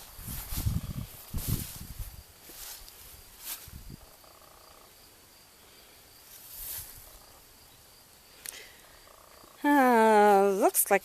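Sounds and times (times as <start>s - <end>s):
soft footsteps: 0.0s - 3.9s, 6.2s - 7.2s
wind gusts rustling: 0.0s - 4.2s
faint high insect trill: 0.0s - 11.0s.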